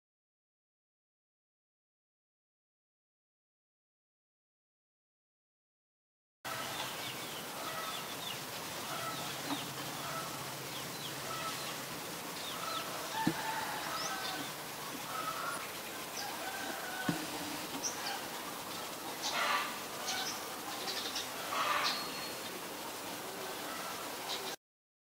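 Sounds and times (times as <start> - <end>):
birds calling: 6.5 - 24.6.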